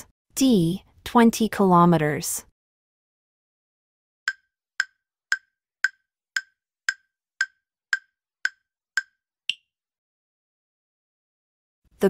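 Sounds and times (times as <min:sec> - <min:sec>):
wooden timer ticks: 0:04.3 - 0:09.2.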